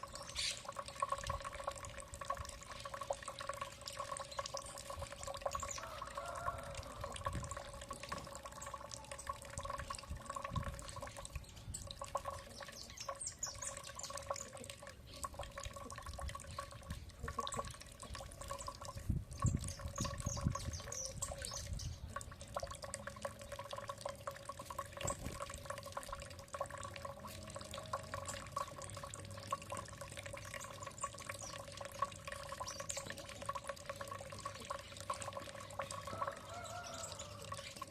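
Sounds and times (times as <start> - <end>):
small birds chirping: 0.0 - 0.8, 10.7 - 15.5, 16.4 - 22.2, 30.4 - 33.7
water dripping and trickling: 0.0 - 37.9.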